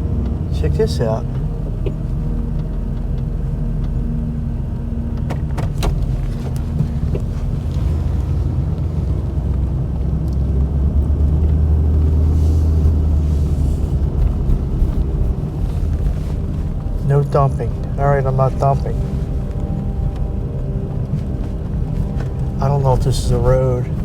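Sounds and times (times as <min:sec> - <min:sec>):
truck engine and road rumble: 0:00.0 - 0:24.0.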